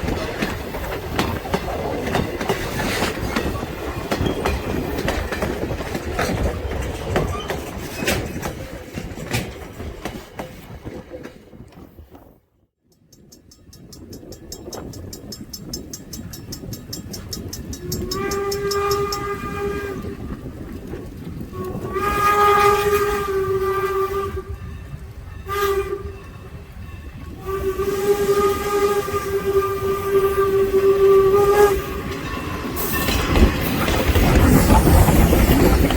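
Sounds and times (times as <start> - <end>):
wheels clicking over rail joints: 0.0 - 12.3, 12.9 - 23.3, 31.0 - 35.9
train cars rolling past: 0.0 - 12.4, 13.0 - 35.9
steam whistle blowing: 17.8 - 20.2, 21.6 - 24.7, 25.4 - 26.4, 27.3 - 32.1.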